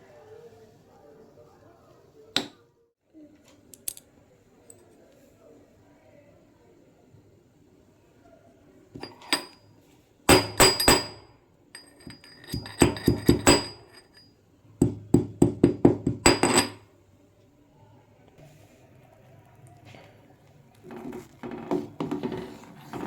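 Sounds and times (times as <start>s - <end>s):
metal cookware clinking together: 9.0s - 9.6s, 10.3s - 14.2s, 16.2s - 16.8s.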